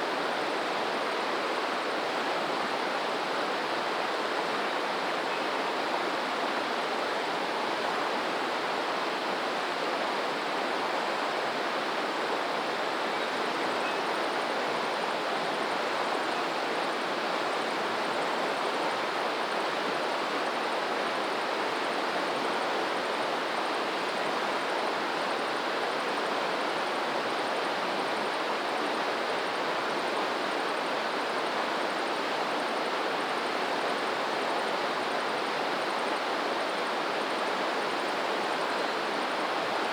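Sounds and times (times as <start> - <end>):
water rushing steadily: 0.0 - 39.9.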